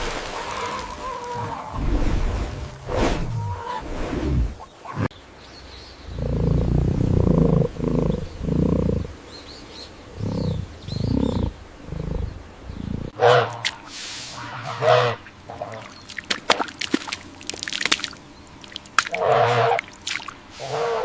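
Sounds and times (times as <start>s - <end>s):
large animal grunting calls: 6.1s - 9.2s, 10.1s - 13.6s
faint bird chirps: 7.8s - 13.1s.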